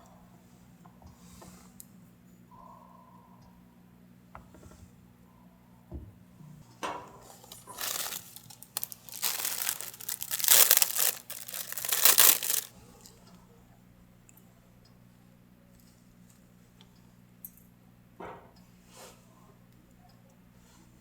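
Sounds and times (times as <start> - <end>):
packaging crinkling and rustling: 7.5 - 12.7.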